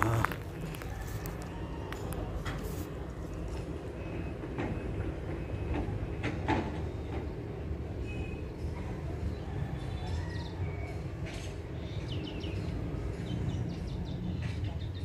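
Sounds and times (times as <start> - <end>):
small birds chirping: 11.7 - 15.0.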